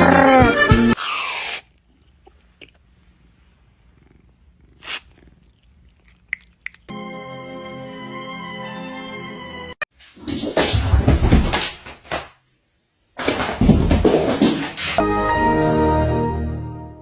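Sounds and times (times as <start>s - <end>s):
breathy puff: 0.6s - 1.7s, 4.8s - 5.3s
background music: 6.9s - 9.8s, 15.0s - 17.0s.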